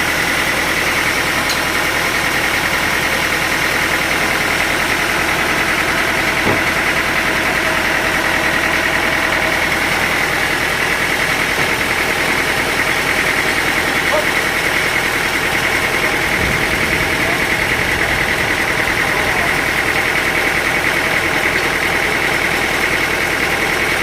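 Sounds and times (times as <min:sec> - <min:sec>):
machinery engine idling: 0:00.0 - 0:24.0.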